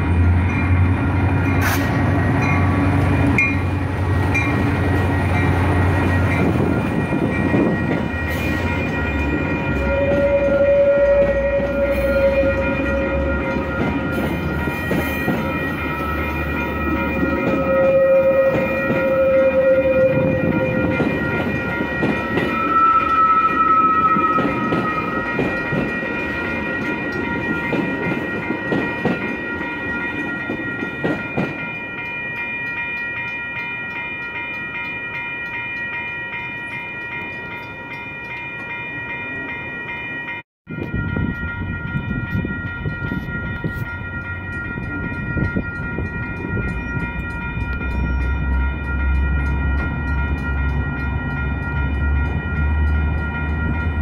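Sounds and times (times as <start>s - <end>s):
crossing bells ringing: 0.0s - 54.0s
train wheels rumbling on rails: 0.0s - 54.0s.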